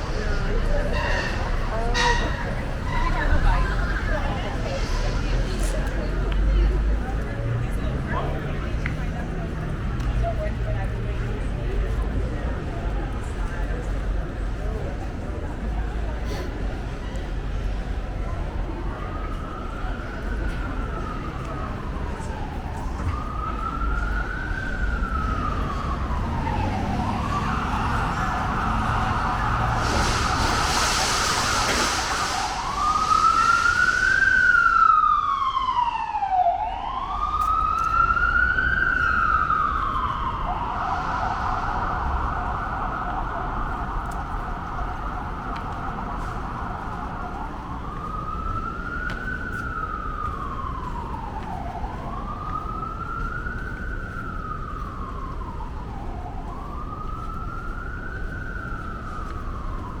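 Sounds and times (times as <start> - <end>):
emergency siren wailing: 0.0 - 15.7, 17.4 - 60.0
traffic hum: 0.0 - 60.0
brief hiss: 29.6 - 34.5.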